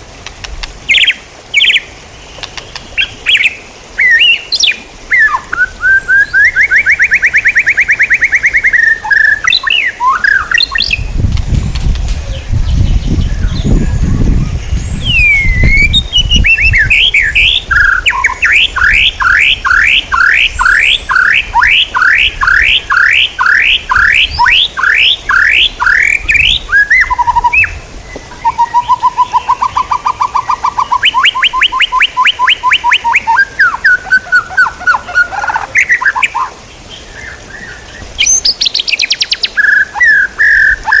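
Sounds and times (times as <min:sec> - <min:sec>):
songbird singing trills: 0:00.0 - 0:41.0.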